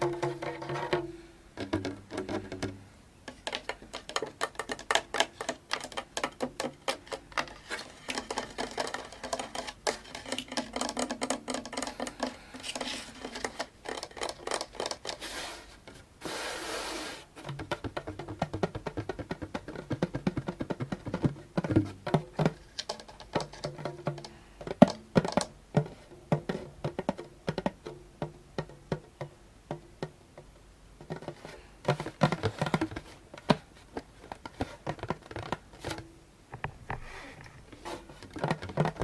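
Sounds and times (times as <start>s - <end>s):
hand drum taps: 0.0s - 2.8s, 17.4s - 22.7s, 23.3s - 30.1s.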